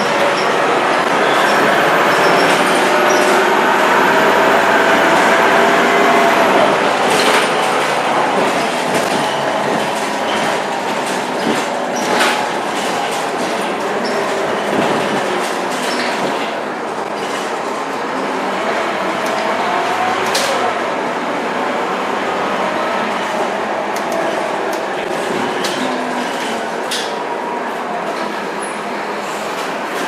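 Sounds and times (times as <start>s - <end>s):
bus engine and turbo: 0.0s - 30.0s
rattles and knocks: 6.9s - 17.6s.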